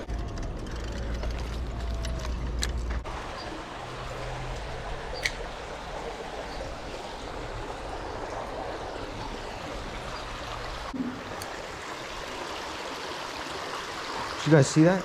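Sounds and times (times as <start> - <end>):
water rushing in a drain: 3.0 - 15.0.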